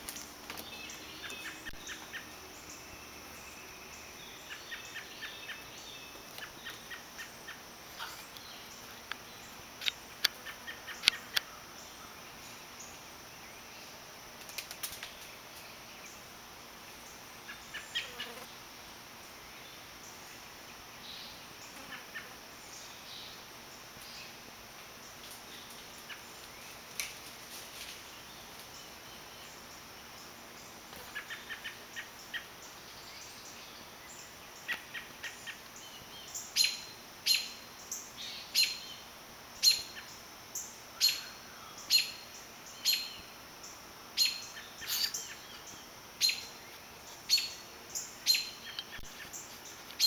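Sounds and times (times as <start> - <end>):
bird chip calls: 4.3 - 11.6, 44.2 - 46.6, 47.3 - 50.0.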